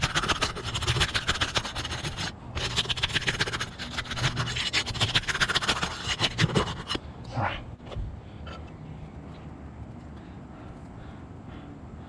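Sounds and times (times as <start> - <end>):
hands scratching roof shingle: 0.0 - 7.0.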